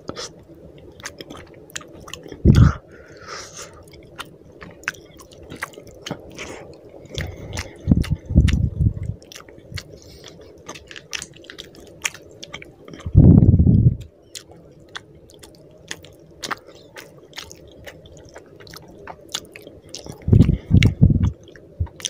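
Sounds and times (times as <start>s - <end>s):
wet chewing: 0.1s - 2.8s, 3.6s - 22.0s
dull low thumps: 7.5s - 9.8s, 13.1s - 14.1s, 20.2s - 22.0s.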